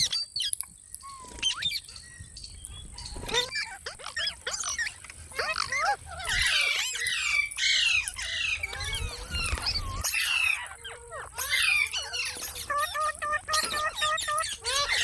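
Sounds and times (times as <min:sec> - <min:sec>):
parakeet squawking and chattering: 0:02.8 - 0:15.0.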